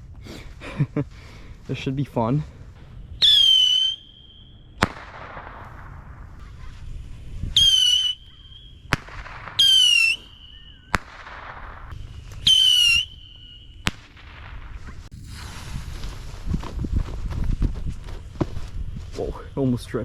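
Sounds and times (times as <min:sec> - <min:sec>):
firework bang echoing: 0:02.8 - 0:06.8, 0:07.7 - 0:16.6
whistling firework whistle: 0:03.0 - 0:05.8, 0:07.4 - 0:16.0.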